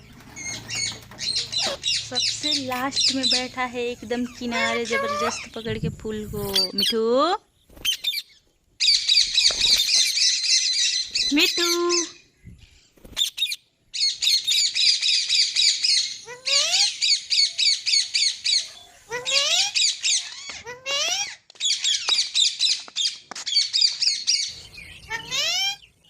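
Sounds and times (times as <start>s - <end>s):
parrot squawking: 0.4s - 3.5s, 4.3s - 5.5s, 13.3s - 22.6s, 25.0s - 25.9s.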